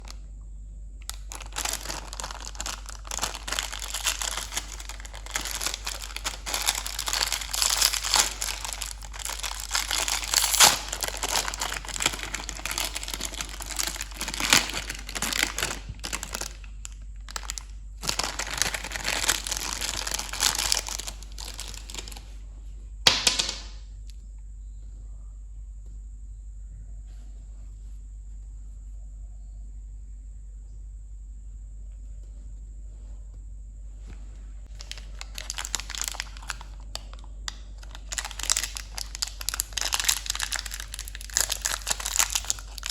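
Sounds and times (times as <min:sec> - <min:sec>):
faint steady hum: 0:00.0 - 0:42.9
candy wrappers crinkling: 0:01.0 - 0:22.4, 0:23.1 - 0:23.8, 0:34.7 - 0:42.9.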